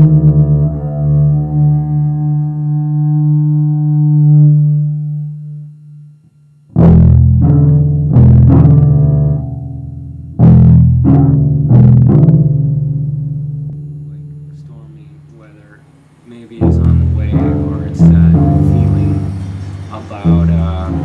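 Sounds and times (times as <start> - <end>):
double bass plucked notes: 0.0 - 21.0.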